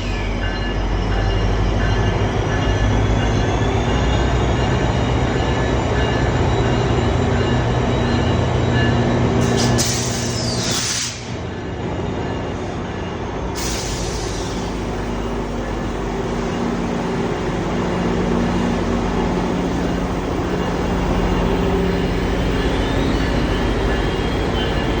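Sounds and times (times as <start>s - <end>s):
diesel train engine drone: 0.0s - 25.0s
rail noise: 0.0s - 25.0s
hiss: 9.4s - 11.3s, 13.6s - 14.9s.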